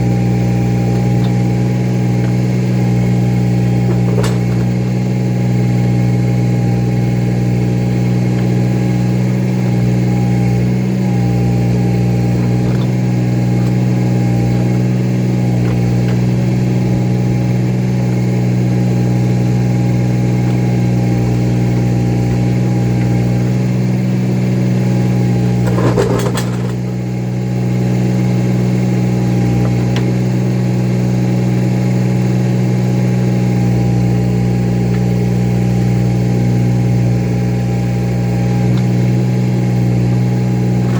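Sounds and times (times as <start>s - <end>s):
tractor engine running: 0.0s - 40.9s
metal clank: 1.1s - 5.1s, 25.5s - 26.9s.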